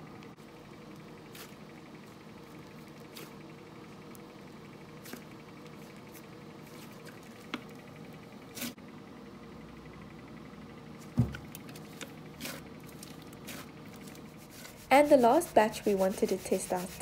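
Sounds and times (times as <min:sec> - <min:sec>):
faint steady hum: 0:00.0 - 0:17.0
dull thump: 0:11.1 - 0:11.5.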